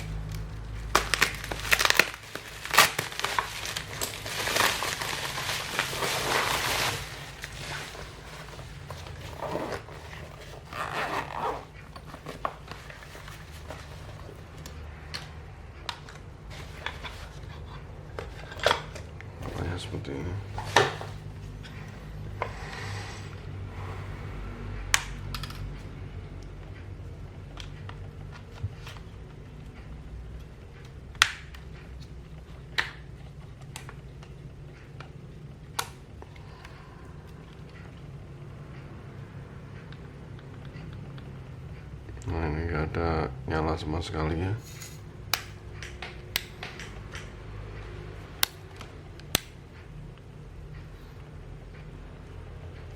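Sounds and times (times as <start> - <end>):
steady low hum: 0.0 - 52.9
small clicks and taps: 45.3 - 47.4.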